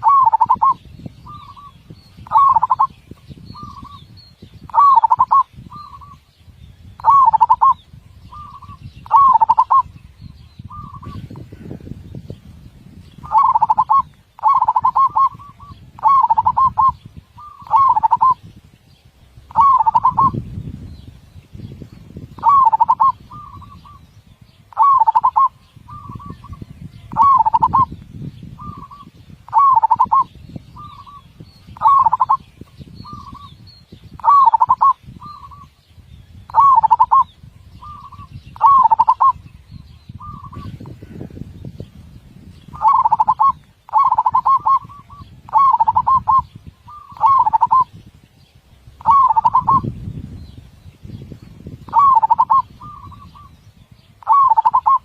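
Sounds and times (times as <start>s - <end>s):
dove cooing: 0.0s - 2.9s, 4.7s - 6.2s, 7.0s - 9.9s, 10.7s - 11.3s, 13.2s - 18.4s, 19.5s - 20.4s, 22.4s - 24.0s, 24.7s - 27.9s, 28.6s - 31.2s, 31.8s - 33.5s, 34.2s - 35.7s, 36.5s - 39.4s, 42.8s - 47.9s, 49.0s - 49.9s, 51.9s - 53.5s, 54.2s - 55.0s.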